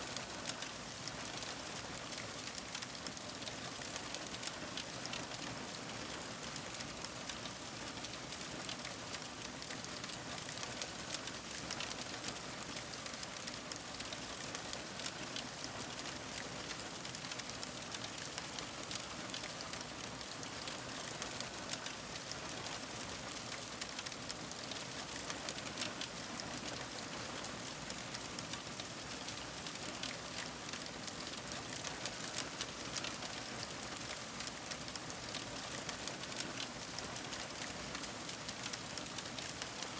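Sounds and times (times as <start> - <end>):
wood fire crackling: 21.7 - 26.9, 27.9 - 39.9.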